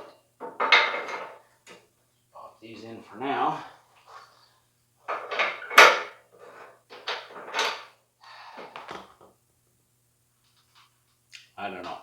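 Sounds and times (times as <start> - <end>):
metal parts clanking and scraping: 0.4 - 1.4, 5.1 - 7.9.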